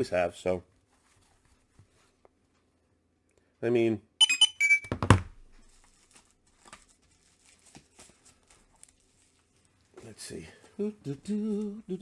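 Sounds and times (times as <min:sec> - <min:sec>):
comic book thumping down: 0:04.9 - 0:05.3.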